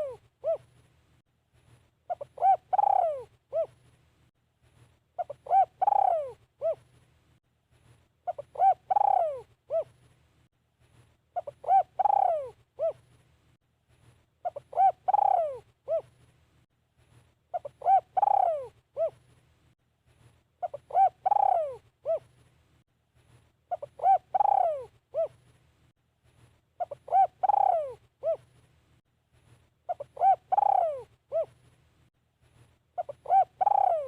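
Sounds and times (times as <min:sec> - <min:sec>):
dove cooing: 0:00.0 - 0:00.8, 0:02.1 - 0:03.8, 0:05.2 - 0:06.9, 0:08.2 - 0:10.0, 0:11.4 - 0:13.1, 0:14.4 - 0:16.2, 0:17.5 - 0:19.2, 0:20.6 - 0:22.3, 0:23.7 - 0:25.4, 0:26.8 - 0:28.5, 0:29.9 - 0:31.6, 0:33.0 - 0:34.0.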